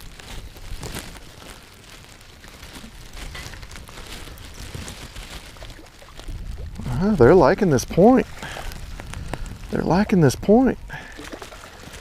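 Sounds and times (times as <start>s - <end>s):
short rustles and clicks: 0.0s - 6.6s
wind buffeting microphone: 2.5s - 12.0s.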